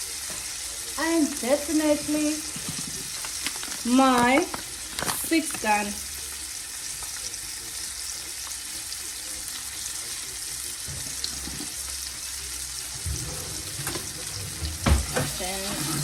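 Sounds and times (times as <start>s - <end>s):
meat sizzling in a frying pan: 0.0s - 16.0s.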